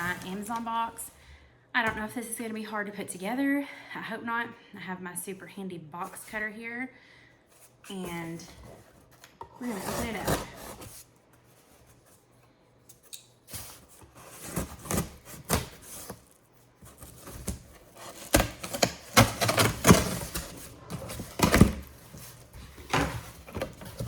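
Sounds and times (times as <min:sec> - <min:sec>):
box cutter cutting cardboard: 0:09.6 - 0:10.9, 0:14.1 - 0:16.2, 0:17.0 - 0:24.0
cardboard scraping and knocking: 0:16.9 - 0:24.0.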